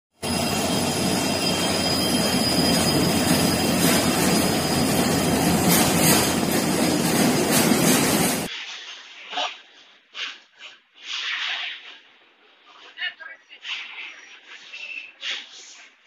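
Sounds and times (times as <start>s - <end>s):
faint high whine: 0.2s - 5.6s
train wheels rumbling on rail: 0.2s - 8.5s
wheels clacking over rail joints: 1.9s - 8.5s.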